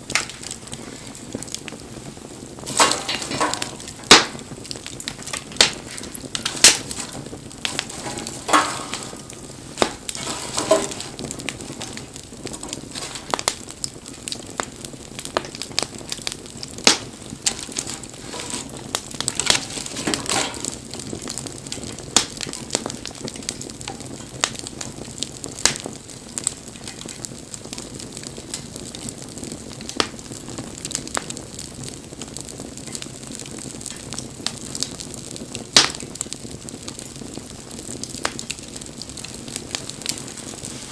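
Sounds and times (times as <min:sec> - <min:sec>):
campfire crackling: 0:00.0 - 0:40.9
hiss of flame: 0:00.0 - 0:40.9.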